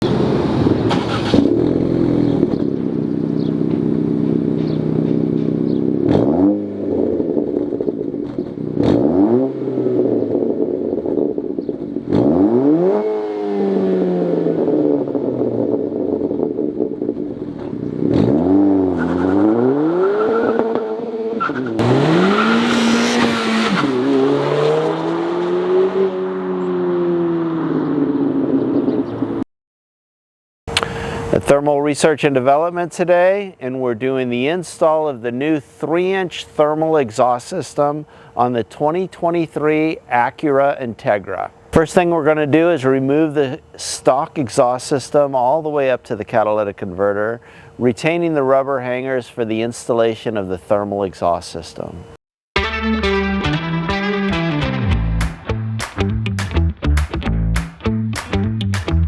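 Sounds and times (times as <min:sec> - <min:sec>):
car engine idling and revving: 0:00.0 - 0:29.4.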